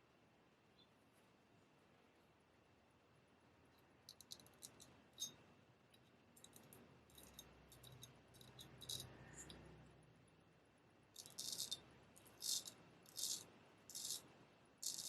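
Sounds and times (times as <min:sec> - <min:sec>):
straight razor blade scraping: 0:11.2 - 0:14.2.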